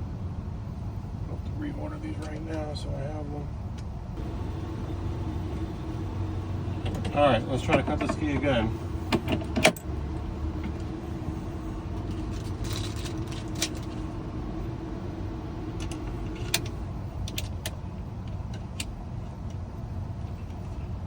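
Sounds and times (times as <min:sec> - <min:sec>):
held machine tone: 0:04.2 - 0:07.7
key cutting machine motor hum: 0:04.2 - 0:11.2.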